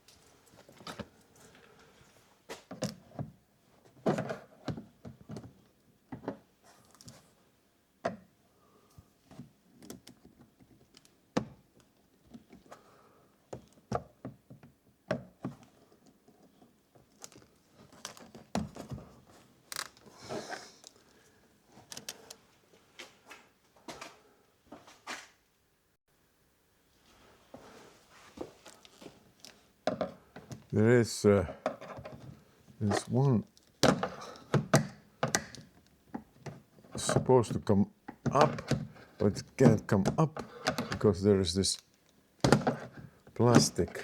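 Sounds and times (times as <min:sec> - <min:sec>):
plastic trim clicking and knocking: 0:33.8 - 0:37.2.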